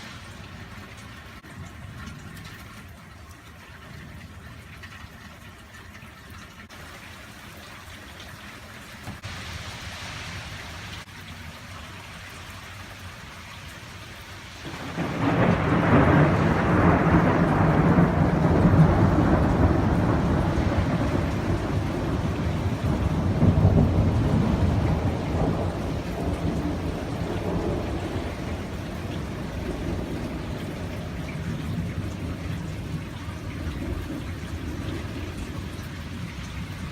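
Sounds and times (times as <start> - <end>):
rain falling: 0.0 - 36.9
thunder rumbling: 14.6 - 36.9.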